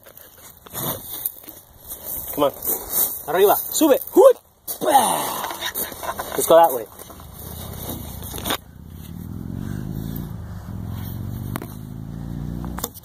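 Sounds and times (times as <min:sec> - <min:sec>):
scraping near microphone: 0:00.2 - 0:03.7, 0:05.5 - 0:11.9
vehicle engine humming: 0:06.8 - 0:13.0.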